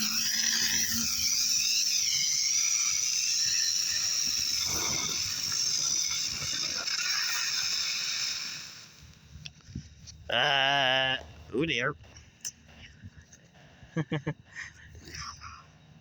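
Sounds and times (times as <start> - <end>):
spinner fireworks whistling and hissing: 0.0 - 9.2.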